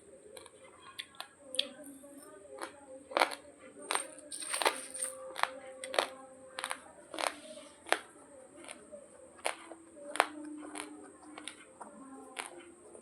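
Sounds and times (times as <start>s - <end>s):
rice grains crunching when chewed: 2.6s - 8.8s, 9.4s - 12.7s.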